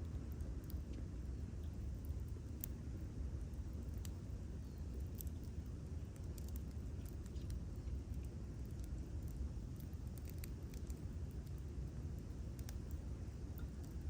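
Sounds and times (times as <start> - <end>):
low steady rumble: 0.0 - 14.0
campfire crackling: 0.2 - 14.0
sharp pops and ticks: 5.0 - 11.6, 12.2 - 14.0.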